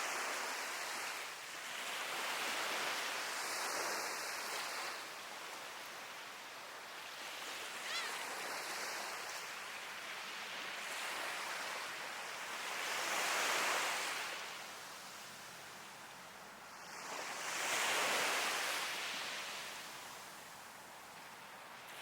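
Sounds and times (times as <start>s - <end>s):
sea waves washing onto shore: 0.0s - 22.0s
gull call: 7.8s - 8.3s.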